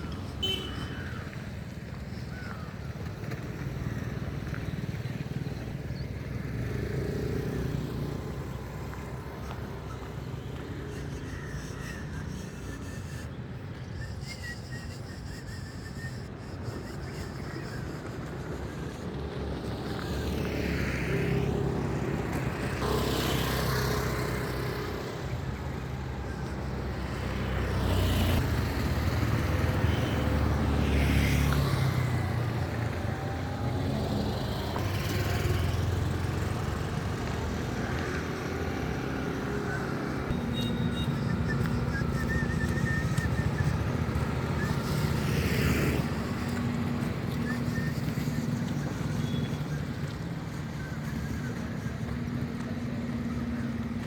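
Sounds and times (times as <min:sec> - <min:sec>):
vehicle engines humming: 0:00.0 - 0:54.0
vehicles passing close by: 0:00.0 - 0:54.0.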